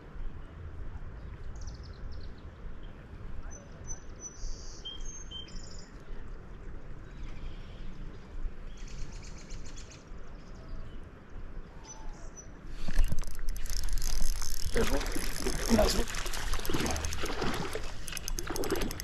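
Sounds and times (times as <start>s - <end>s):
commotion of clicks: 12.8s - 19.0s.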